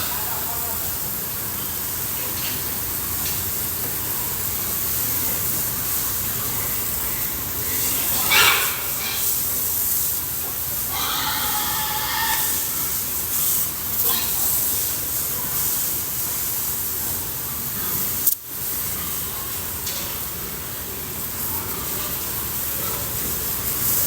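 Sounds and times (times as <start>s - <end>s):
water spray hissing: 0.0s - 24.0s
pig squealing: 7.7s - 9.4s, 10.8s - 13.0s.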